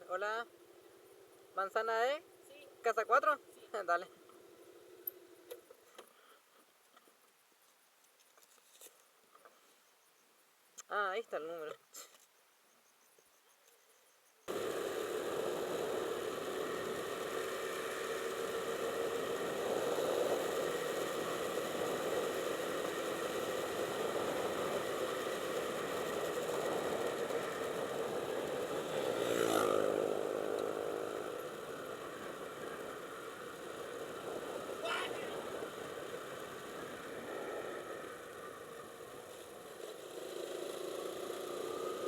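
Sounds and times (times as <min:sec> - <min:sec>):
wind and road noise: 0:00.0 - 0:06.2, 0:14.5 - 0:42.0
motorcycle engine running: 0:14.5 - 0:42.0.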